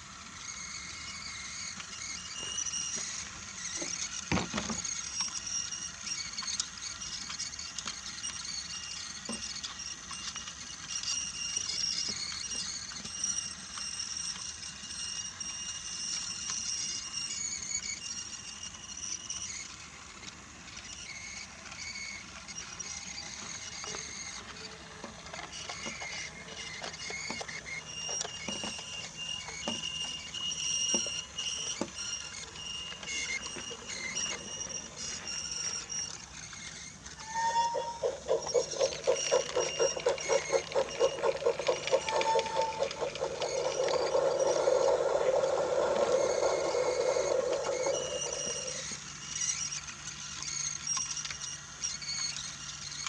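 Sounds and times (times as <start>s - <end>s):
toy train motor whine: 0.0s - 53.0s
wheels clicking over track joints: 22.8s - 49.0s.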